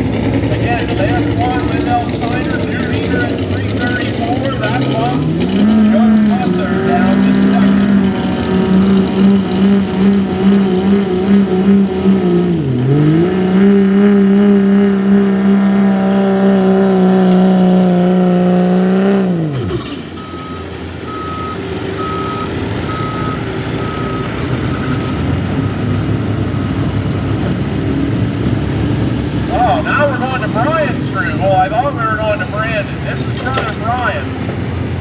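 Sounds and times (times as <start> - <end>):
diesel truck engine revving: 0.0 - 35.0
reversing beeper: 0.6 - 11.8, 14.0 - 27.0.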